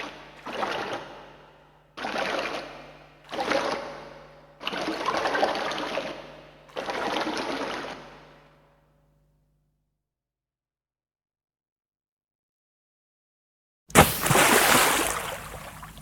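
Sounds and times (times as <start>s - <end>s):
liquid spurting in gushes: 0.0s - 8.4s, 14.0s - 16.0s.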